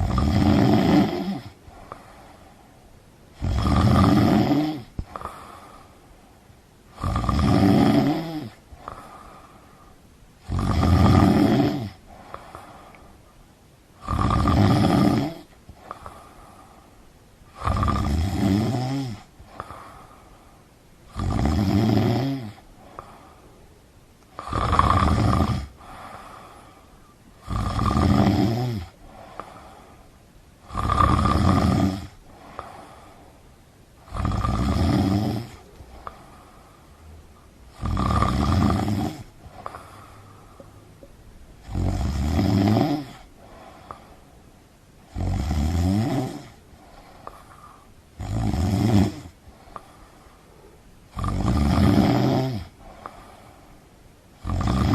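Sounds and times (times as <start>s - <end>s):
person snoring loudly: 0.0s - 1.6s, 3.4s - 5.6s, 6.9s - 9.3s, 10.4s - 12.6s, 14.0s - 16.2s, 17.5s - 20.0s, 21.1s - 23.1s, 24.3s - 26.6s, 27.4s - 29.8s, 30.6s - 33.0s, 34.0s - 36.2s, 37.7s - 40.3s, 41.6s - 44.0s, 45.1s - 46.6s, 48.2s - 49.4s, 51.1s - 53.2s, 54.4s - 54.9s
faint breath: 1.5s - 3.1s, 4.9s - 6.6s, 8.5s - 10.2s, 12.0s - 13.5s, 15.4s - 17.6s, 19.2s - 20.8s, 22.6s - 24.6s, 25.7s - 27.4s, 28.9s - 30.3s, 32.2s - 34.1s, 35.5s - 37.7s, 39.2s - 41.3s, 43.2s - 45.1s, 46.5s - 48.1s, 49.3s - 51.1s, 52.7s - 54.3s.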